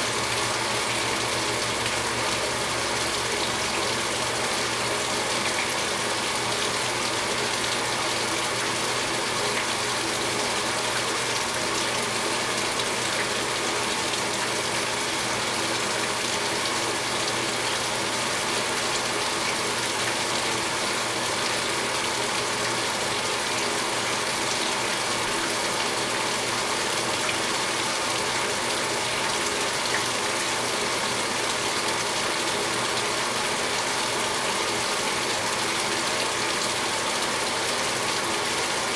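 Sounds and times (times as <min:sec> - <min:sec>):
water pouring into washing machine: 0:00.0 - 0:38.9.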